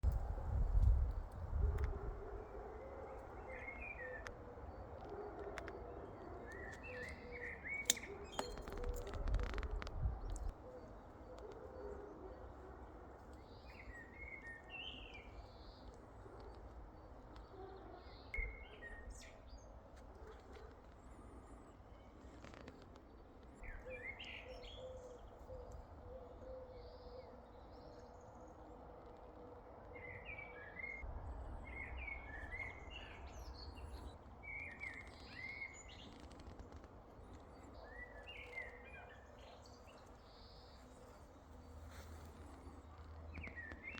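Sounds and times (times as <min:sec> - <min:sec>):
birds chirping: 0:01.9 - 0:27.3.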